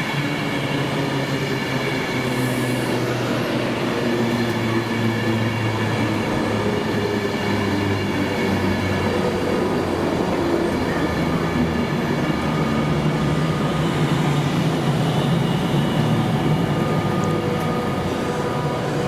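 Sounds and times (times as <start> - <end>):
train mechanical hum: 0.0 - 19.0.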